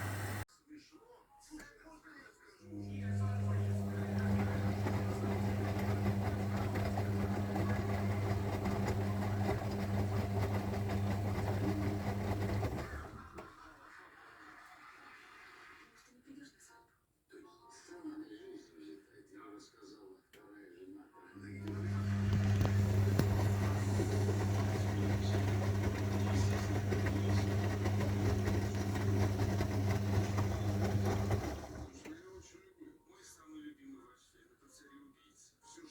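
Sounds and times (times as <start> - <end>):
washing machine drum motor humming: 0.0 - 0.4, 2.8 - 13.5, 21.5 - 32.4
water noise: 0.0 - 0.4.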